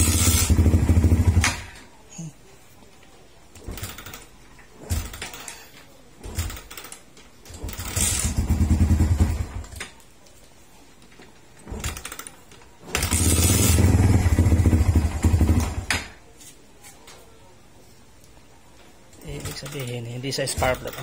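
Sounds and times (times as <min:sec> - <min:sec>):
motorcycle engine cranking and starting: 0:00.0 - 0:01.8, 0:06.2 - 0:10.0, 0:11.6 - 0:15.9.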